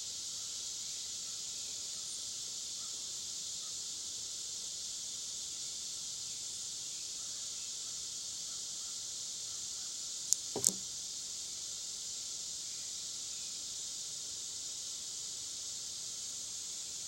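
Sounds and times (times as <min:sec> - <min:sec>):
high-pitched insect chorus: 0:00.0 - 0:17.0
sharp knocks: 0:10.4 - 0:10.8.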